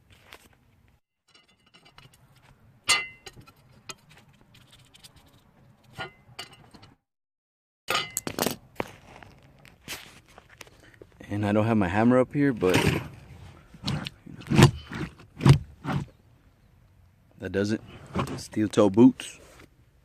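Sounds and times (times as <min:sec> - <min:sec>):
metal part clinking: 0:01.3 - 0:04.7, 0:05.9 - 0:07.0.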